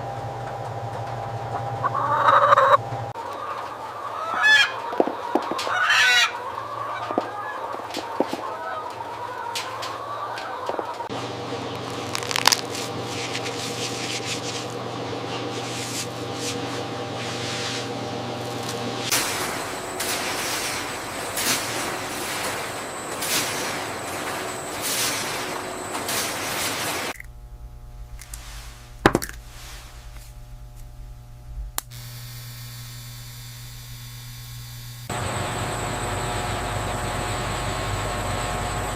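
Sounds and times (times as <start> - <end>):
machine hum: 11.1 - 17.4, 18.0 - 38.9
crackling rustling noise: 11.8 - 14.8, 19.1 - 31.8.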